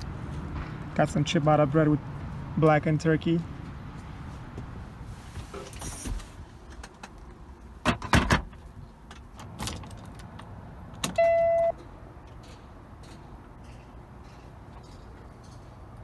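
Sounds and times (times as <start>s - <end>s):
short electronic beep: 11.2s - 11.7s.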